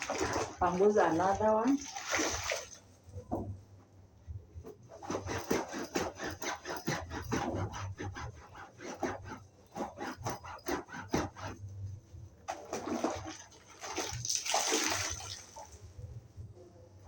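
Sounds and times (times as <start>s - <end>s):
sponge rubbing sofa seat: 4.9s - 11.7s.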